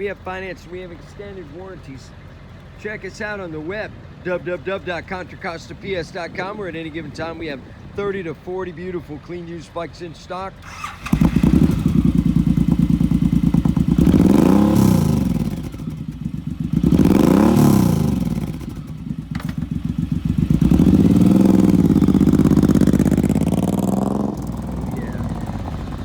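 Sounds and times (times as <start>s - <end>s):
motorcycle engine revving: 10.6s - 26.0s.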